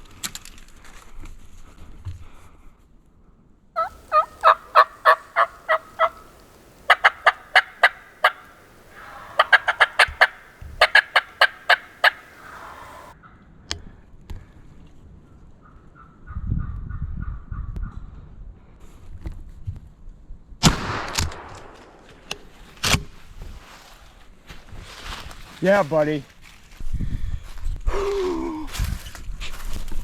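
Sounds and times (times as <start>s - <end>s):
turkey yelping: 3.8s - 13.2s.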